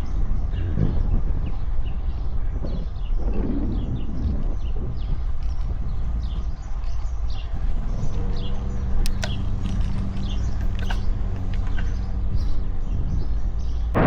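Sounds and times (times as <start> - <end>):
birds chirping: 0.0 - 14.0
vehicle engine hum: 0.0 - 14.0
wind on microphone: 0.0 - 14.0
sharp ticks: 5.3 - 12.8.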